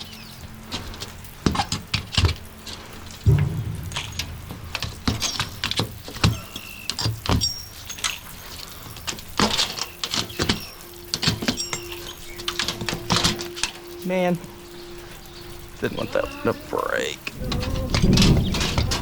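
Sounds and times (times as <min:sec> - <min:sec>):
steady low hum: 0:03.2 - 0:06.1
metallic pings: 0:03.2 - 0:08.4, 0:09.4 - 0:16.2.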